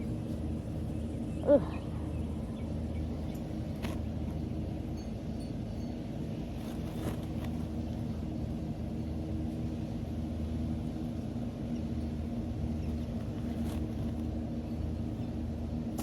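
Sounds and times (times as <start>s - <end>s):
electric fan motor humming: 0.0s - 16.0s.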